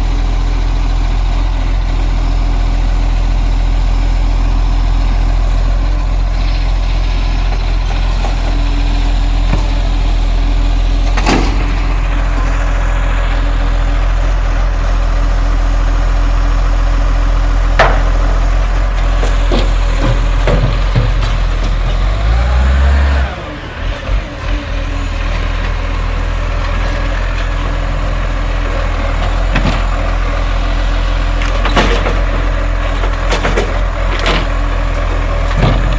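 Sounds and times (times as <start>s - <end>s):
garbage truck diesel engine: 0.0s - 35.9s.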